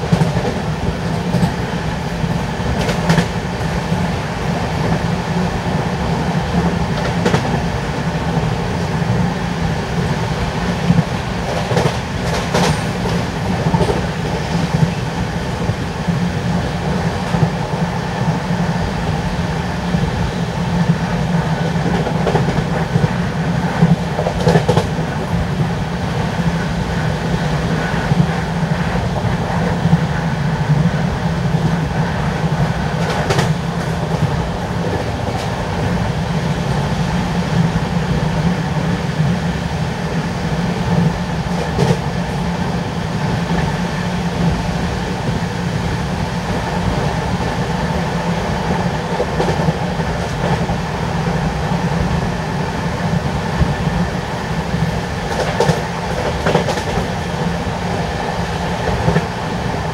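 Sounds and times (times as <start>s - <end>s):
train wheels rumbling on rail: 0.0s - 59.9s
sharp track clacks: 10.9s - 15.0s, 23.8s - 25.0s, 33.0s - 35.6s, 55.2s - 57.1s.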